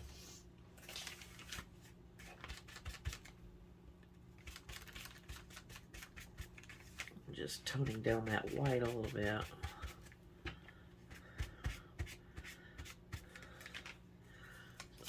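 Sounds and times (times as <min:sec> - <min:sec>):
paper rustling: 0:00.0 - 0:03.3, 0:04.4 - 0:07.2.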